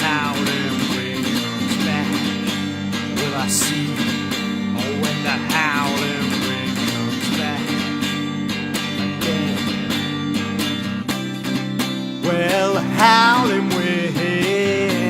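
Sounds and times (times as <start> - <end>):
acoustic guitar strumming: 0.0 - 15.0
wavering melody line: 12.9 - 13.9.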